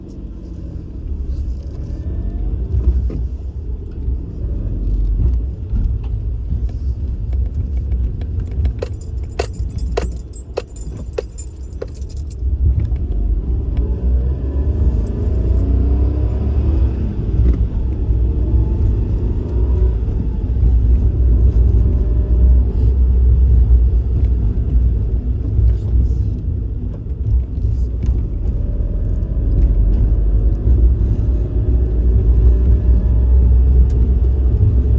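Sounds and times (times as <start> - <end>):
car engine and road noise: 0.0 - 34.9
clicks and jingling: 7.7 - 12.5.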